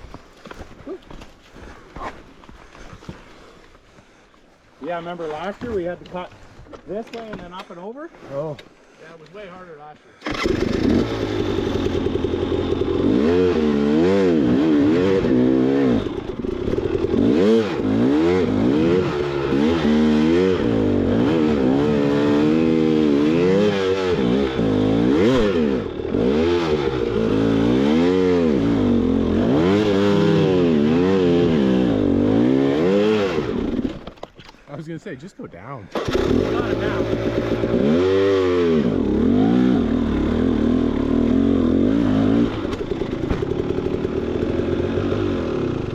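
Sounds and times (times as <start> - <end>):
dirt bike engine revving: 10.2 - 34.1, 35.9 - 45.9.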